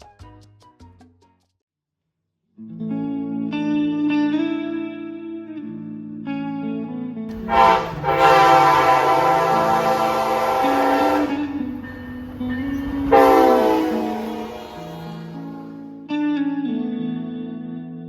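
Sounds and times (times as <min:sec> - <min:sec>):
train horn blasts: 0:07.3 - 0:16.1.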